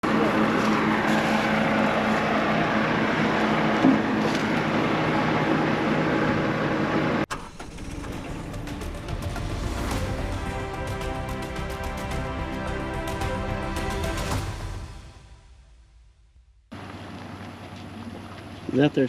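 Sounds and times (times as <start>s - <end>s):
vehicle engine humming: 0.0s - 5.9s, 7.3s - 15.8s
road noise: 7.3s - 15.7s.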